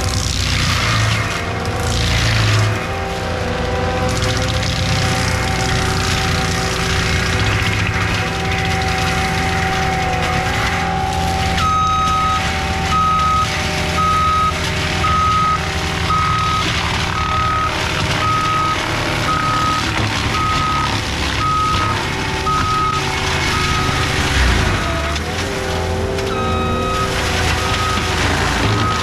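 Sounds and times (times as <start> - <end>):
diesel engine running: 0.0 - 29.0
reverse alarm beeping: 10.5 - 24.3, 26.3 - 29.0.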